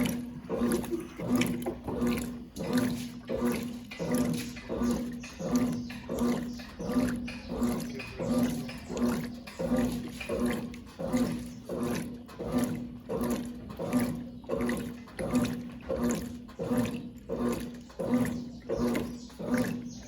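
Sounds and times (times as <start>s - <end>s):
washing machine agitator motor hum: 0.0s - 20.0s
water sloshing: 0.0s - 20.0s.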